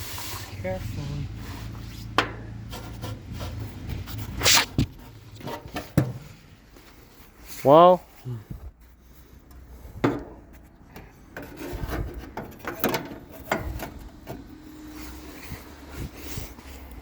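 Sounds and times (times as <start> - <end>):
air conditioner unit scraping and knocking: 0.6 - 6.5, 9.9 - 16.9.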